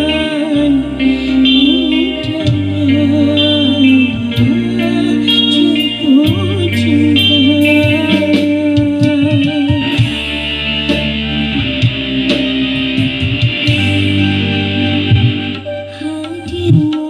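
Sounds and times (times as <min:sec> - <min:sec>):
heavy sustained bass line: 0:00.0 - 0:16.1
plucked guitar melody: 0:00.0 - 0:17.0.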